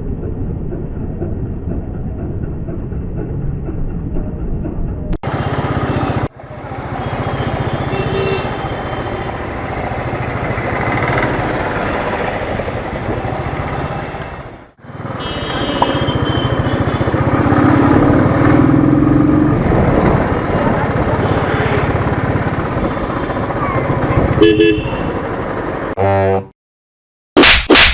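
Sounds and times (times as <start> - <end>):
motorcycle engine running: 0.2 - 13.9, 14.8 - 25.8
road and traffic noise: 5.1 - 26.0.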